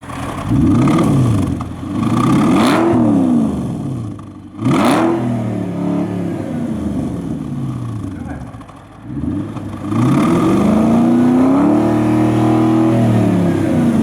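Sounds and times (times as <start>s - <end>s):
car engine revving and idling: 0.0s - 14.0s.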